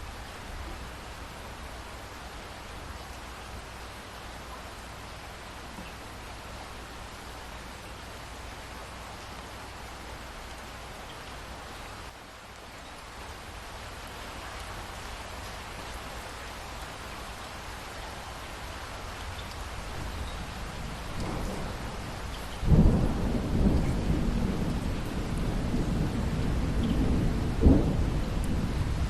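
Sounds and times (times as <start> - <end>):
steady rain falling: 0.0 - 29.0
thunderclap rumbling: 20.8 - 29.0.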